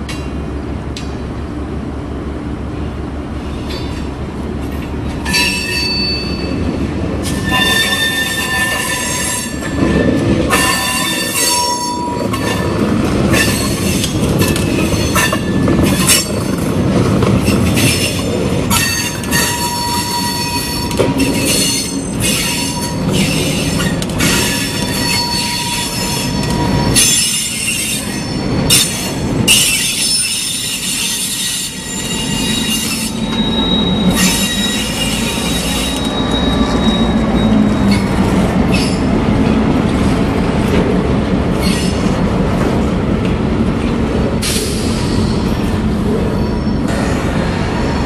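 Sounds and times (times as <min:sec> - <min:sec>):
train rumble: 0:00.0 - 0:48.0
steel wheels squealing: 0:07.2 - 0:16.5, 0:17.4 - 0:39.1, 0:41.5 - 0:42.2, 0:44.4 - 0:47.1.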